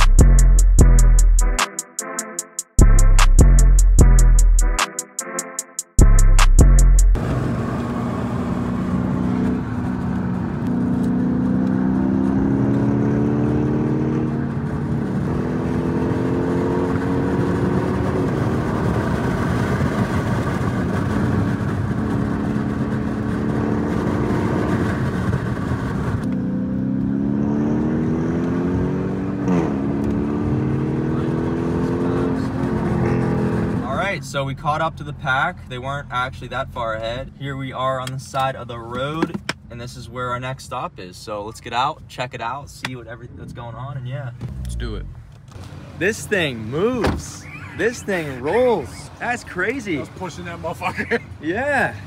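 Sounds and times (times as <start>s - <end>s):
car engine revving: 6.5s - 37.2s, 43.2s - 51.3s
road noise: 7.1s - 52.0s.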